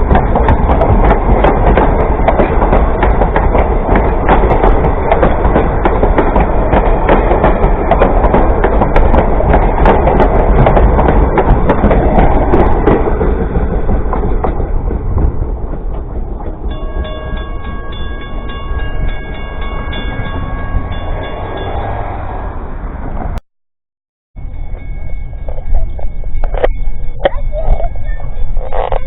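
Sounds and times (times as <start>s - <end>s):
wheels clicking over rail joints: 0.0s - 22.2s
railroad cars rolling past: 0.0s - 23.4s, 24.4s - 29.0s
ringing tone: 16.7s - 22.6s, 24.4s - 29.0s.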